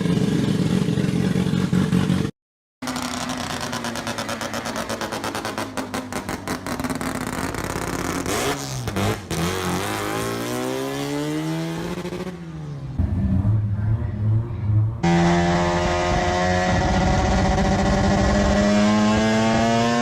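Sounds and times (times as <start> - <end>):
rotary engine idling and revving: 0.0 - 20.0.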